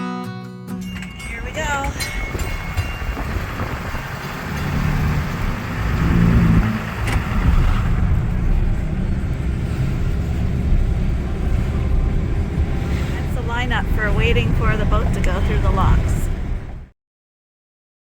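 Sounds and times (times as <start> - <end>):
boat engine low rumble: 1.1 - 16.9.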